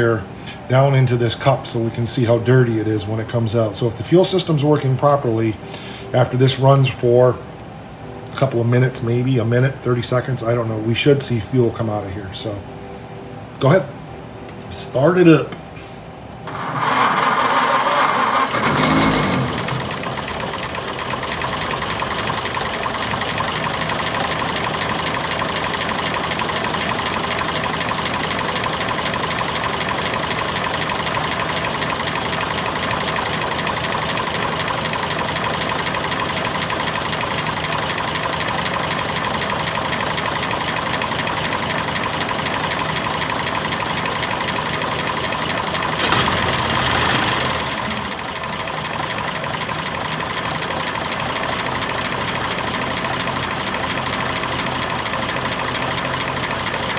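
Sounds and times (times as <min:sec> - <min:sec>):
car engine idling: 0:16.5 - 0:56.9.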